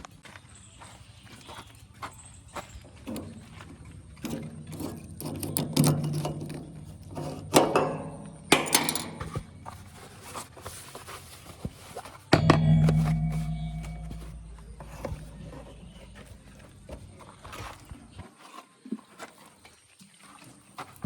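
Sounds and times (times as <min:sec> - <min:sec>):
machine clanks and rattles: 0:04.2 - 0:09.4.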